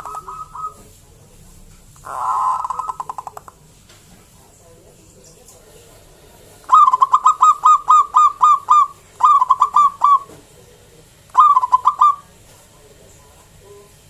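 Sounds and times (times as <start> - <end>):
dove cooing: 0.0 - 0.9, 2.0 - 3.6, 6.7 - 10.4, 11.3 - 12.3.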